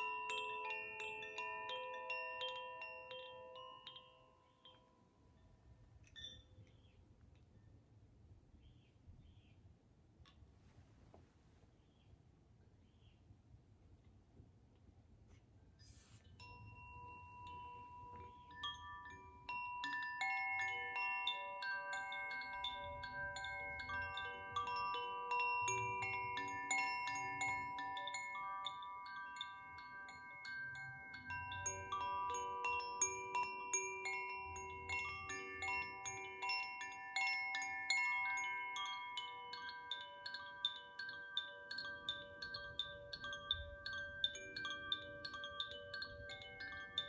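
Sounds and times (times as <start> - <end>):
wind chime ringing: 0.0 - 7.1, 15.8 - 47.0
faint rustle: 10.3 - 13.2, 14.0 - 16.6.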